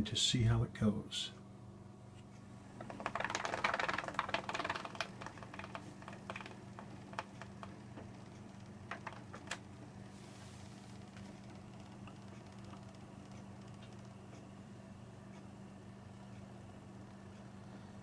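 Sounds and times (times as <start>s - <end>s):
rapid rattling clicks: 2.8s - 9.8s, 10.9s - 14.4s.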